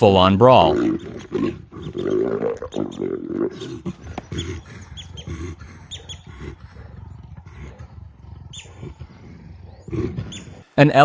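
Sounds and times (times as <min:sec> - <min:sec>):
leopards growling and snarling: 0:00.4 - 0:11.0.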